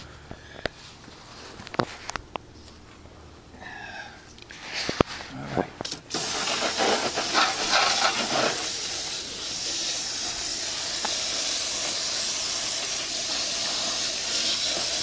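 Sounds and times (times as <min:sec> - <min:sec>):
hose water spraying: 0:06.1 - 0:15.0.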